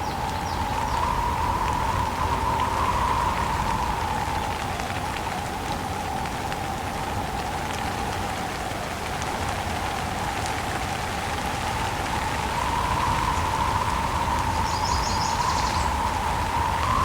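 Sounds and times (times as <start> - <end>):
steady rain falling: 0.0 - 17.0
whooshing wind: 11.3 - 17.0.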